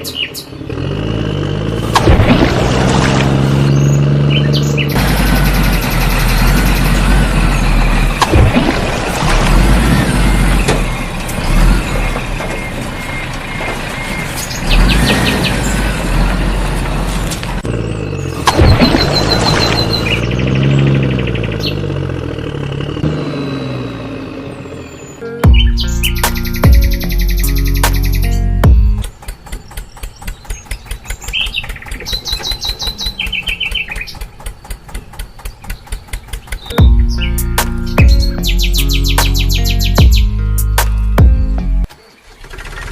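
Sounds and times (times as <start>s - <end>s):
bird chirps: 0.0s - 0.6s, 3.6s - 8.2s, 10.4s - 16.0s, 23.4s - 42.3s
heavy vehicle engine rumbling: 0.0s - 42.9s.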